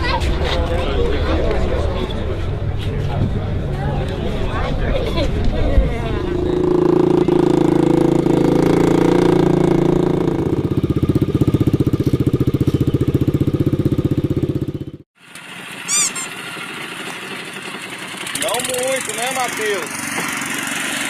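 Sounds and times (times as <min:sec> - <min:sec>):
small gasoline engine running: 0:06.6 - 0:21.0
high squeak: 0:15.8 - 0:16.4.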